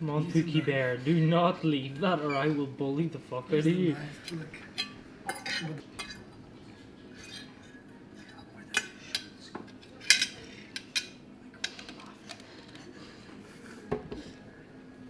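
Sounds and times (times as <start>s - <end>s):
cutlery clinking on a plate: 4.2s - 6.3s, 7.2s - 12.8s.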